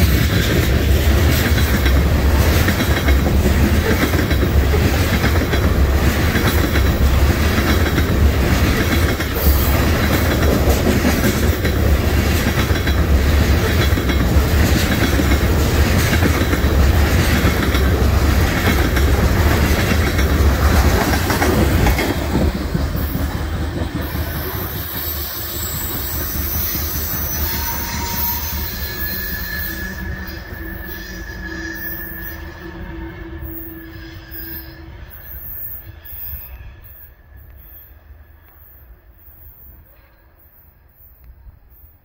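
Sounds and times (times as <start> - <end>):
wheels clickety-clack: 0.0 - 28.5
freight train low rumble: 0.0 - 42.0.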